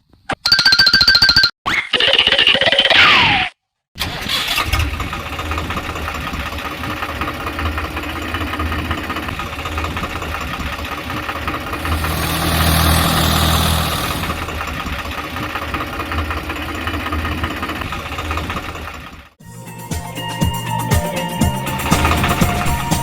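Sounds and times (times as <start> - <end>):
tractor engine idling: 5.6 - 14.7
hiss: 11.8 - 14.5.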